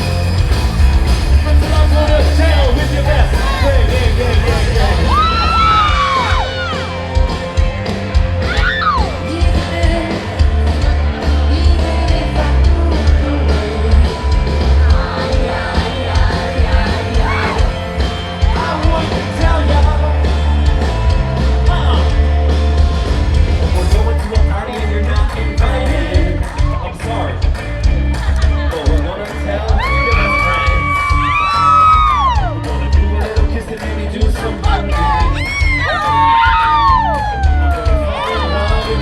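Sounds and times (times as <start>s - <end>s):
live rock band playing: 0.0s - 39.0s
person singing and shouting: 1.4s - 7.0s, 8.4s - 22.2s, 28.4s - 39.0s.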